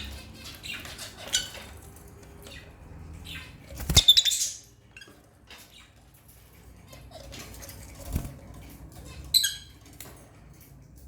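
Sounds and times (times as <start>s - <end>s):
lovebirds chirping: 2.4s - 4.8s.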